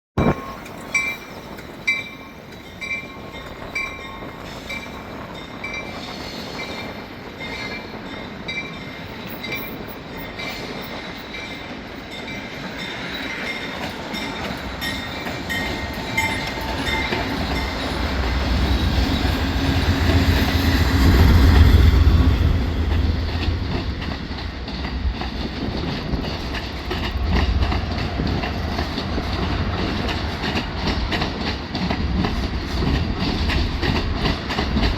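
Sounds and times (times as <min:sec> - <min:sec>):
crossing bell dinging: 0:00.2 - 0:06.0, 0:07.3 - 0:21.0
train engines and wheels rumbling: 0:00.2 - 0:34.9
wheels clacking on rail joints: 0:00.2 - 0:34.9.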